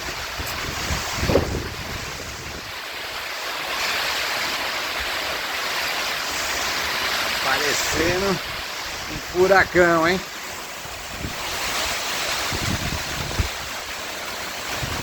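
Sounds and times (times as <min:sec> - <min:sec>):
wind gusts buffeting microphone: 0:00.0 - 0:03.2, 0:06.4 - 0:15.0
heavy rain pouring: 0:00.0 - 0:15.0.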